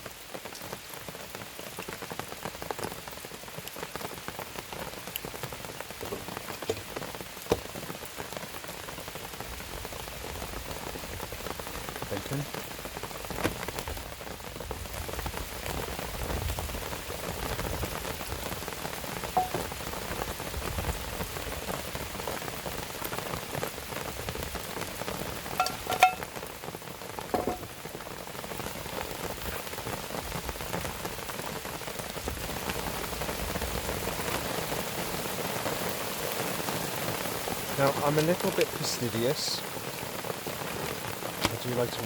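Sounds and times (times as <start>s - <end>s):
rain pattering: 0.0s - 42.0s
short clinks: 25.6s - 26.3s.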